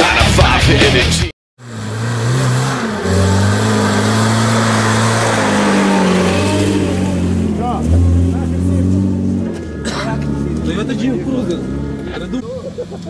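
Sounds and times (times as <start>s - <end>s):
loud rock music: 0.0s - 1.3s
car engine running through mud: 1.6s - 13.0s.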